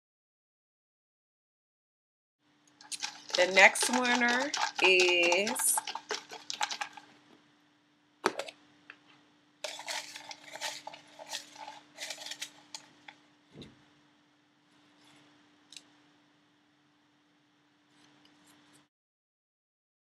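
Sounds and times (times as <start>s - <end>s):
paper slips rustling: 2.8s - 7.0s, 9.7s - 12.8s.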